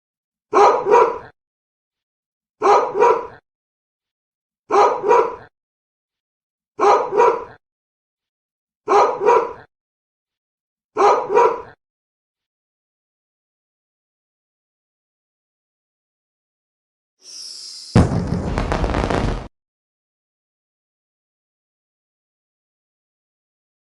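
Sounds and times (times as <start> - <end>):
dog barking: 0.5 - 1.4, 2.6 - 3.4, 4.7 - 5.5, 6.8 - 7.6, 8.9 - 9.7, 11.0 - 11.8.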